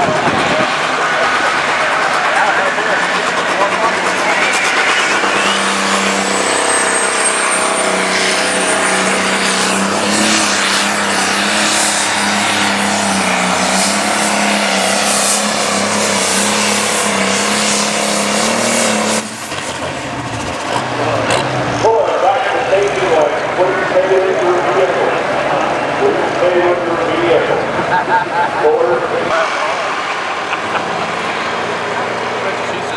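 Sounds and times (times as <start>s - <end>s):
diesel tractor engine at full throttle: 0.0s - 32.9s
high turbo whistle: 4.3s - 19.6s.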